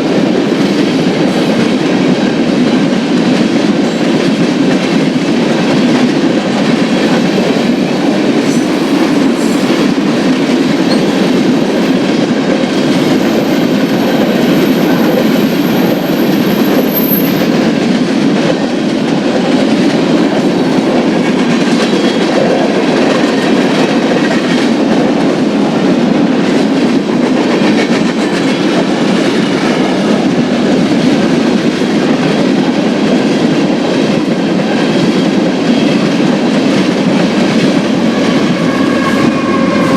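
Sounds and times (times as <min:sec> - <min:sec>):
freight train wheels on rail: 0:00.0 - 0:39.9.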